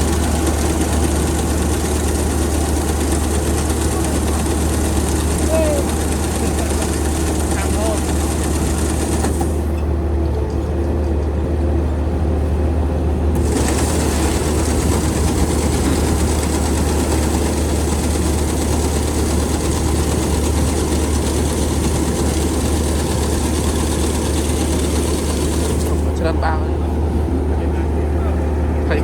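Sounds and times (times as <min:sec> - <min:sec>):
engine running with low hum: 0:00.0 - 0:29.0.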